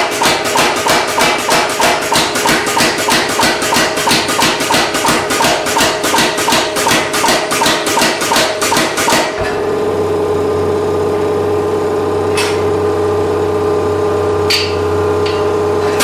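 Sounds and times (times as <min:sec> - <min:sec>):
power hammer pounding steel: 0:00.0 - 0:09.8
machine hum: 0:00.0 - 0:16.0.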